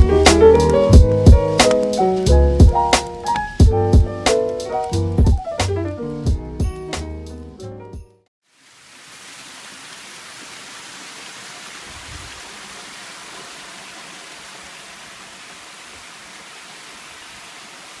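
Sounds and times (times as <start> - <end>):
waterfall rushing: 8.6 - 18.0.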